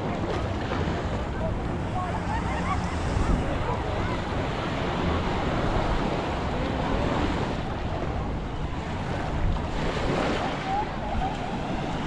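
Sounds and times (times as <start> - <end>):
sea waves washing onto beach: 0.0 - 12.0
wind buffeting microphone: 0.0 - 12.0.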